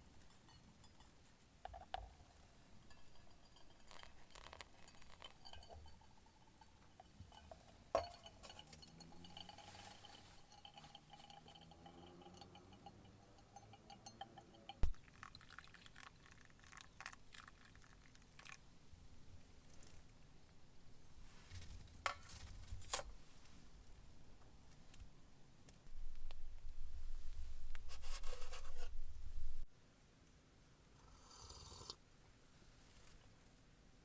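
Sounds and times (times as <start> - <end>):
glass clinking: 0.0 - 16.1
liquid being poured: 8.0 - 18.6.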